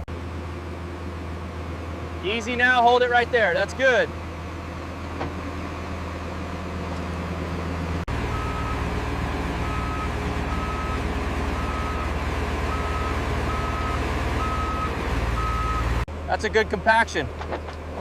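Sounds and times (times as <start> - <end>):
diesel engine running: 0.0 - 18.0
reversing alarm beeping: 8.3 - 8.8, 9.6 - 16.0.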